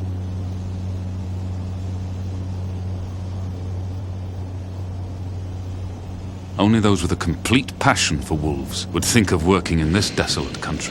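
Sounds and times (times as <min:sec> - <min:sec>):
propeller aircraft engines: 0:00.0 - 0:10.9.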